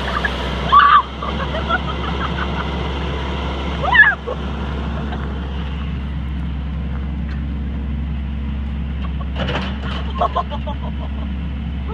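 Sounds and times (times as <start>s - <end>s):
excavator diesel engine droning: 0.0s - 11.9s.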